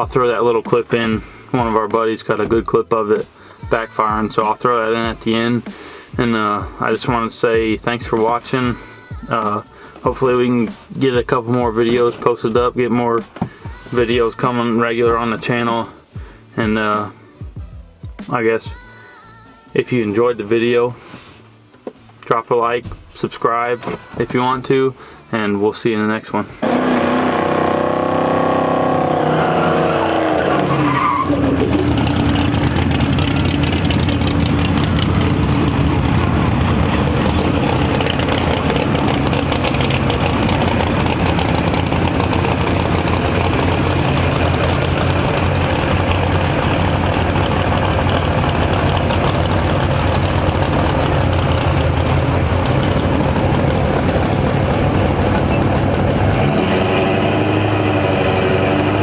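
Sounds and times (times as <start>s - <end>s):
diesel truck engine drone: 26.6s - 59.0s
engine backfire popping and crackling: 31.3s - 56.6s.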